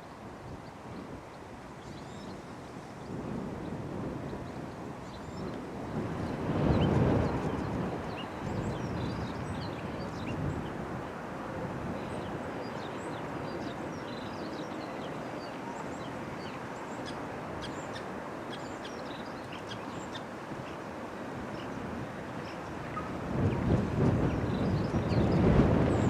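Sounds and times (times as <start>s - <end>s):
small birds chirping: 12.0s - 26.0s.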